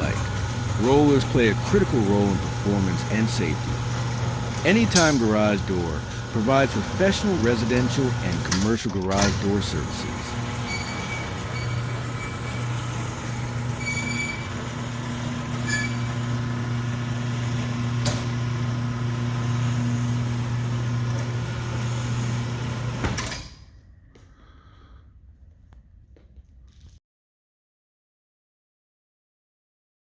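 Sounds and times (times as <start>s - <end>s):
rollers squeaking and clicking: 0.0s - 16.7s
garage door motor hum: 0.0s - 24.9s.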